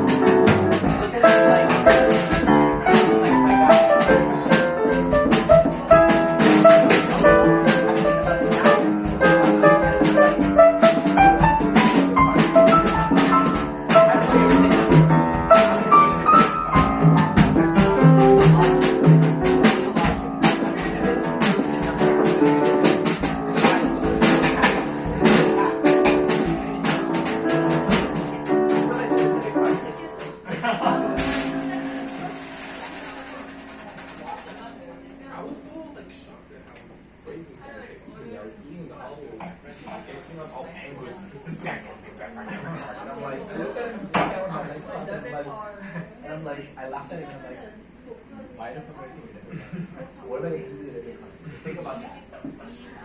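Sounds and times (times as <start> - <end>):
quick percussion strokes: 0.0 - 29.6, 31.1 - 35.0
jazz band melody: 0.0 - 35.8.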